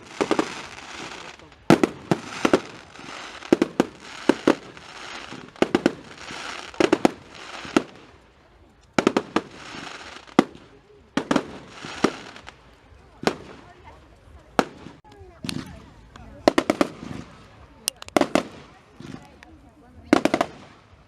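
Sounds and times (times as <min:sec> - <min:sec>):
fireworks bangs: 0:00.0 - 0:08.2, 0:09.0 - 0:12.6, 0:13.2 - 0:13.9, 0:14.6 - 0:21.0.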